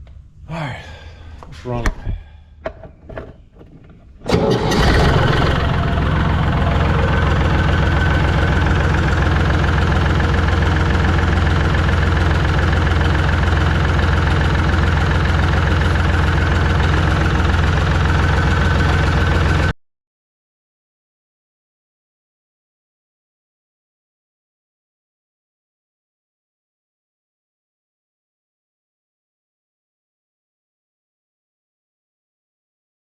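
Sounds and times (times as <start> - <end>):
engine starting and idling: 2.8 - 19.7.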